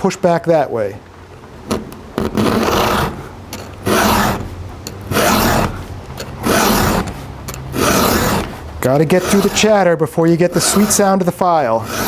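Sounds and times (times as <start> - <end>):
file rasping on chainsaw chain: 2.4 - 12.0.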